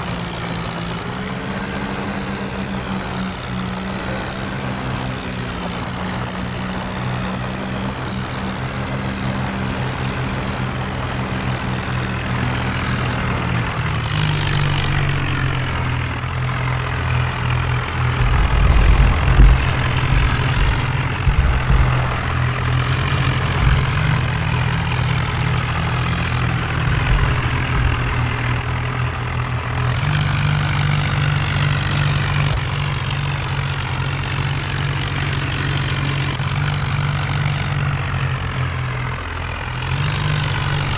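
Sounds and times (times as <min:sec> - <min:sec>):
tractor engine running: 0:00.0 - 0:40.9
heavy low thuds: 0:14.4 - 0:16.2, 0:18.1 - 0:29.0.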